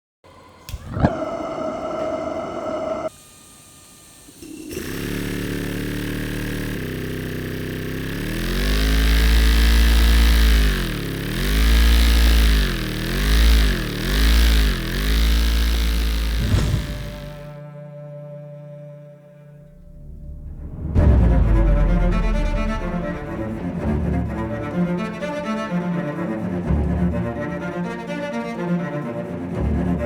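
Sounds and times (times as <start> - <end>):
model steam engine running: 0.4 - 17.5.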